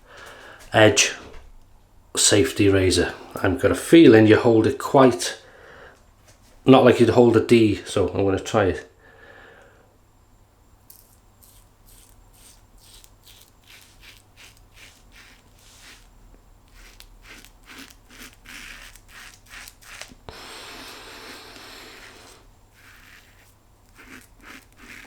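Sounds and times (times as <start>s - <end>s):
razor scraping stubble: 10.9s - 25.0s.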